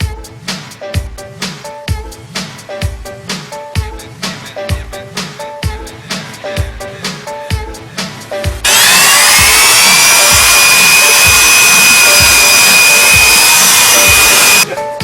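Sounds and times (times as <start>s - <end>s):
background music with beat: 0.0s - 15.0s
power tool whining: 8.6s - 14.6s.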